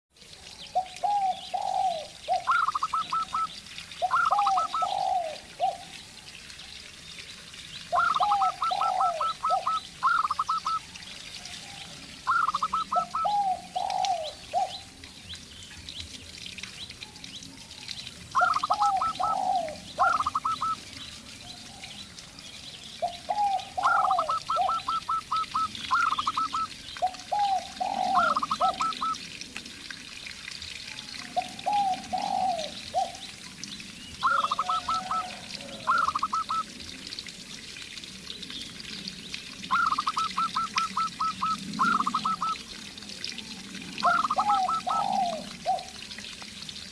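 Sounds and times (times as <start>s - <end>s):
small birds chirping: 0.6s - 29.2s, 38.3s - 42.7s
doves calling: 0.7s - 6.0s, 7.8s - 14.9s, 18.3s - 22.0s, 22.9s - 29.3s, 31.3s - 36.7s, 39.7s - 42.7s, 44.0s - 46.0s.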